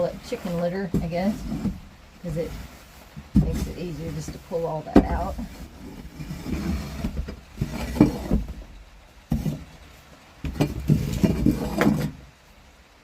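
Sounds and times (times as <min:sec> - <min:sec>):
scraping wood shavings: 0:00.0 - 0:08.7.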